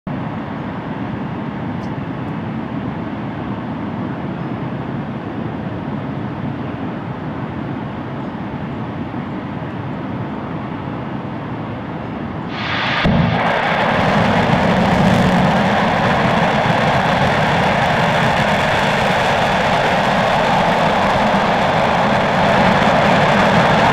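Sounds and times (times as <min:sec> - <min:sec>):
steady rushing noise: 0:12.4 - 0:23.9
rocket engine roaring: 0:12.5 - 0:23.9.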